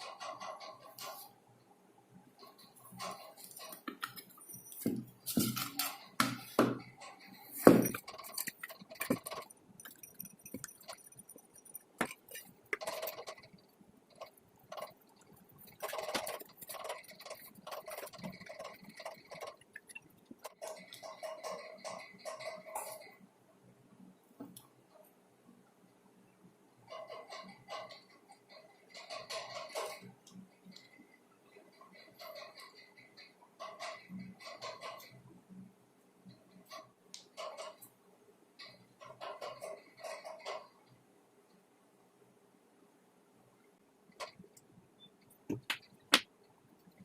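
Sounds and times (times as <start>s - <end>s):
hard parts clinking and knocking: 2.4s - 23.2s.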